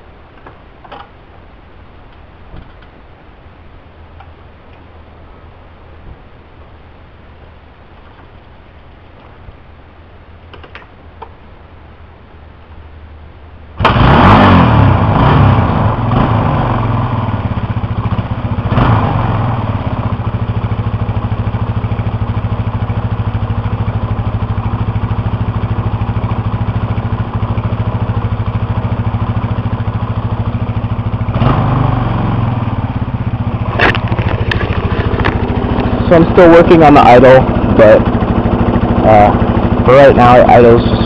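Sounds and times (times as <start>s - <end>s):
motorcycle engine idling and revving: 13.8s - 41.0s.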